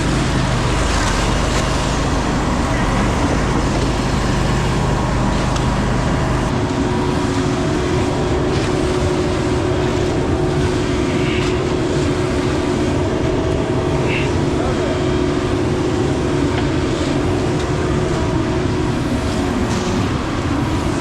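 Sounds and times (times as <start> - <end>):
loud engine running: 0.0 - 21.0.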